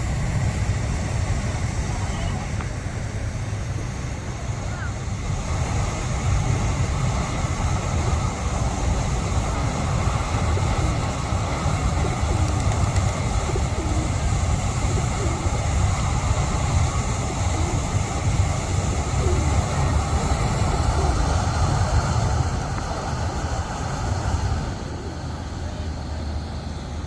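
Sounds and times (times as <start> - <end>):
pigeons cooing: 10.1 - 21.9, 24.6 - 25.5.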